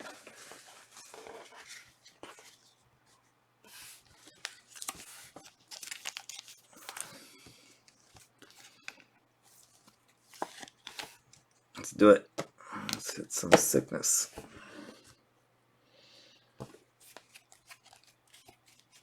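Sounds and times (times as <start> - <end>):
card pack wrappers tearing and crinkling: 4.6 - 7.2.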